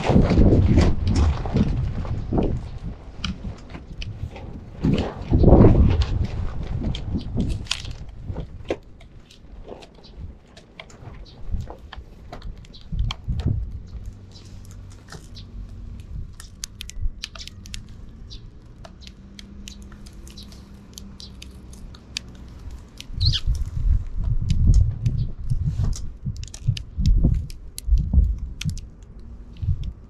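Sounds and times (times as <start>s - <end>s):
birds pecking and crunching: 0.0s - 30.0s
sparrows chirping: 12.6s - 13.2s, 13.8s - 15.7s, 16.4s - 23.8s.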